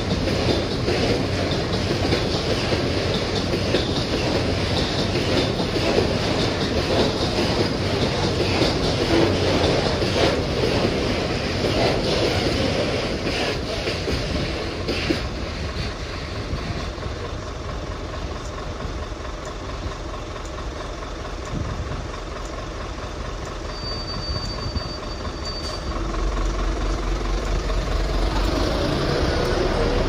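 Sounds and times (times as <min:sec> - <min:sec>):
freight train wagons rumbling: 0:00.0 - 0:30.0
locomotive engine rumble: 0:00.0 - 0:30.0
train wheel clicks: 0:00.0 - 0:30.0
high-pitched wheel squeal: 0:23.6 - 0:26.1.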